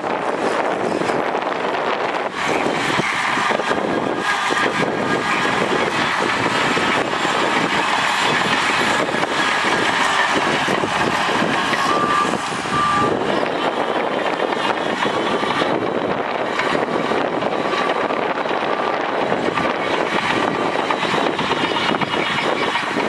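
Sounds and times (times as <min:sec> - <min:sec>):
heavy diesel machinery running: 0:00.0 - 0:23.0
reversing beeps: 0:11.0 - 0:13.7.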